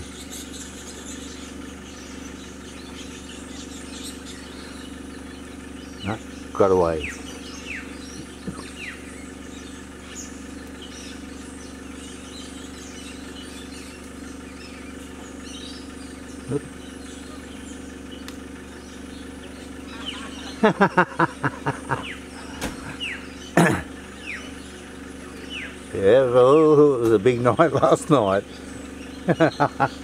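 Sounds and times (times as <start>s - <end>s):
car engine idling: 0.0s - 30.0s
small birds chirping: 0.0s - 30.0s.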